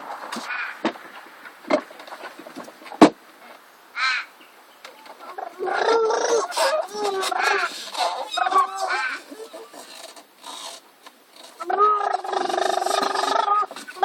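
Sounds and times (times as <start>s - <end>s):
crows cawing: 0.4s - 0.9s, 4.0s - 4.4s, 5.2s - 9.8s.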